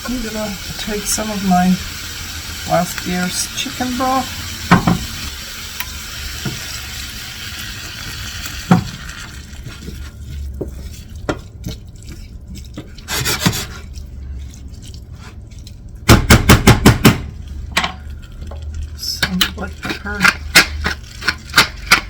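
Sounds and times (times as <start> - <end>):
vegetables sizzling in a pan: 0.0 - 10.0
utensil knocking against pan: 4.7 - 5.1, 16.1 - 17.9.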